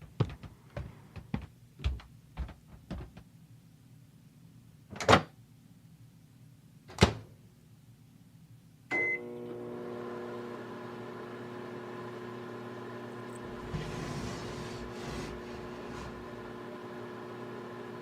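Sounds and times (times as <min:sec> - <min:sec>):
microwave oven humming: 0:08.9 - 0:18.0.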